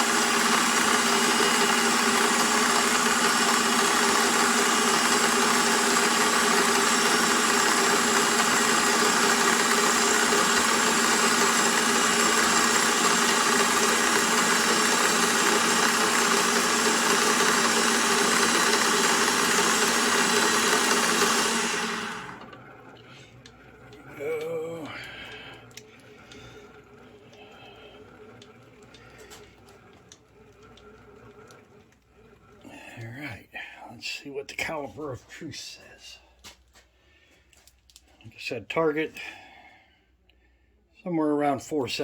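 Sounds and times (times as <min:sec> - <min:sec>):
milling machine cutting steel: 0:00.0 - 0:22.6.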